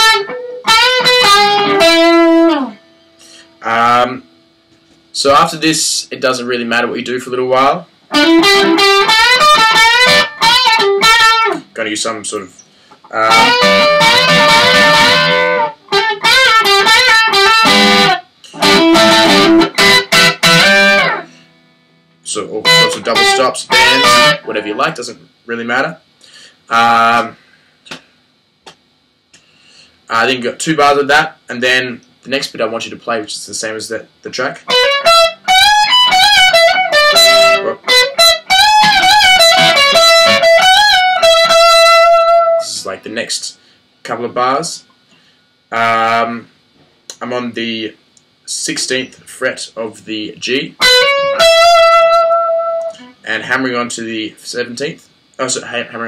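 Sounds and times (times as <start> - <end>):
electric guitar playing lead licks: 0.0 - 3.4, 8.1 - 11.7, 13.0 - 21.6, 22.6 - 25.0, 34.6 - 42.8, 50.8 - 53.2.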